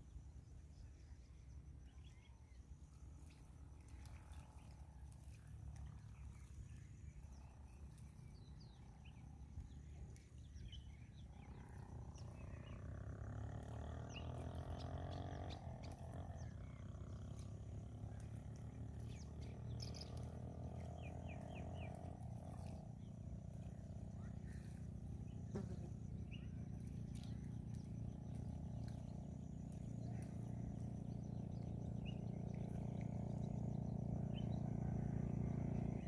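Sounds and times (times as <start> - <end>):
low mechanical hum: 0.0 - 36.0
birds chirping: 10.4 - 36.0.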